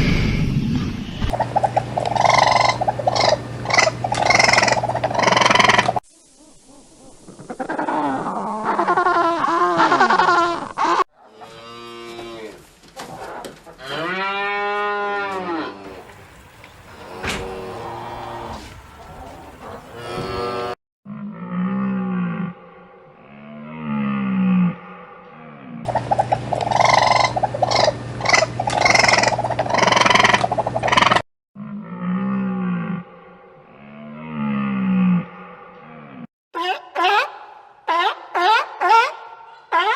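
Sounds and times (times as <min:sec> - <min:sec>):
farm animals calling: 0:01.3 - 0:06.0, 0:06.9 - 0:20.8, 0:25.9 - 0:31.2
low drawn-out animal call: 0:01.3 - 0:12.5, 0:16.9 - 0:39.9
cow mooing: 0:16.9 - 0:25.8.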